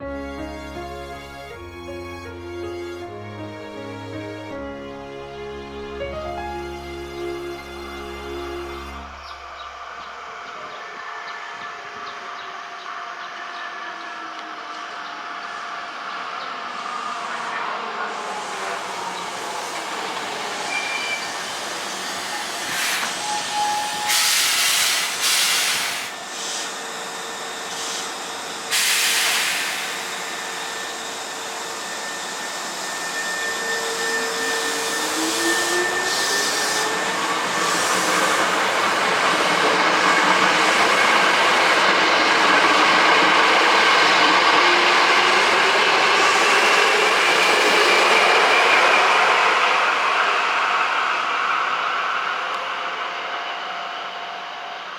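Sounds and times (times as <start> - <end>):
train running noise: 0.0 - 54.9
traction motor whine: 6.6 - 54.9
sharp air hisses: 16.7 - 44.3.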